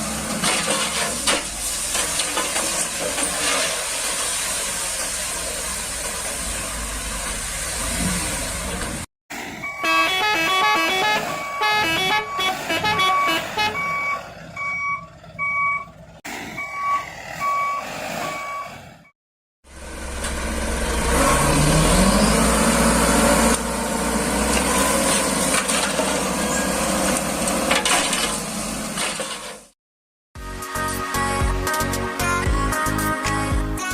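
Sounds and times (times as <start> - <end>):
toy electronic beeps: 9.6 - 15.9.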